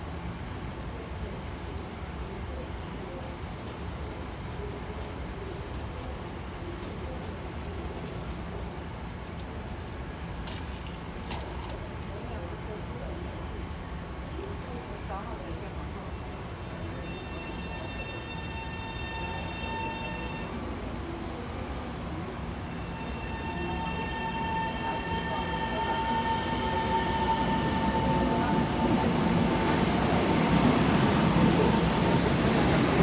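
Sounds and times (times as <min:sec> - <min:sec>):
electric train running noise: 0:17.0 - 0:33.0.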